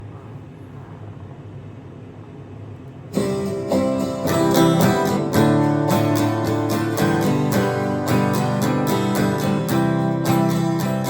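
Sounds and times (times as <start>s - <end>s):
room hum and hiss: 0.0s - 11.0s
acoustic guitar strumming chords: 3.1s - 11.0s.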